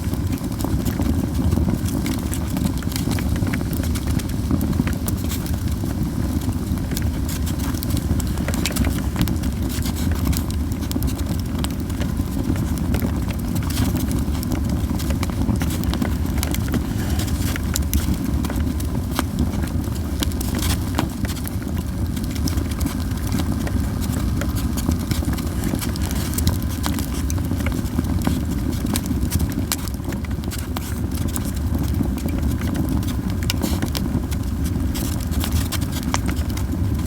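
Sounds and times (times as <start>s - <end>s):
campfire crackling and popping: 0.0s - 37.0s.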